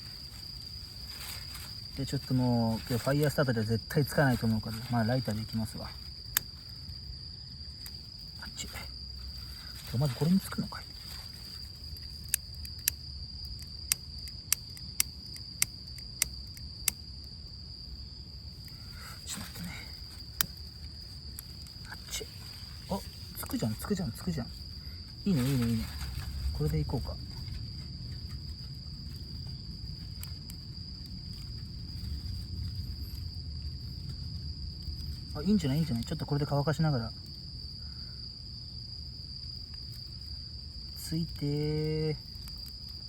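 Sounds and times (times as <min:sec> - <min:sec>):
crickets trilling: 0:00.0 - 0:43.0
faint clicks: 0:12.3 - 0:17.0.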